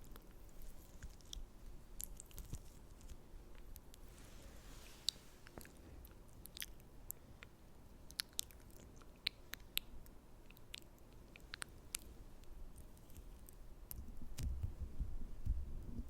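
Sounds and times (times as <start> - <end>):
faint hiss: 0.0 - 8.1
wet mouth clicks and smacks: 5.0 - 7.5, 8.1 - 14.7.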